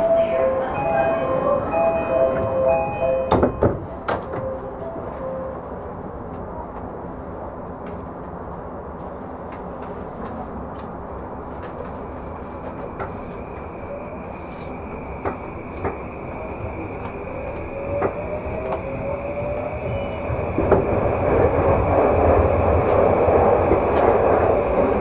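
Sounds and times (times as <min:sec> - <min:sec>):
train carriage rumble and hiss: 0:00.0 - 0:25.0
electronic door chime: 0:00.8 - 0:03.6, 0:04.2 - 0:05.6
sliding doors closing knocks: 0:03.3 - 0:04.6.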